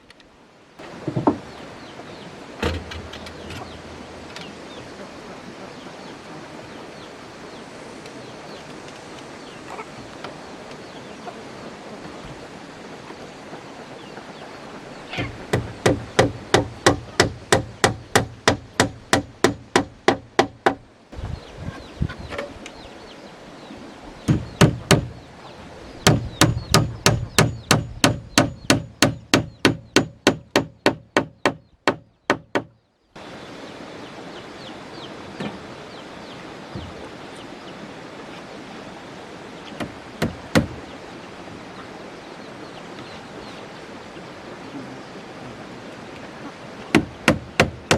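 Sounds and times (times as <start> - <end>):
hand tool striking wood: 15.2 - 20.8, 24.3 - 25.1, 26.0 - 32.7, 39.8 - 40.8, 46.9 - 47.9.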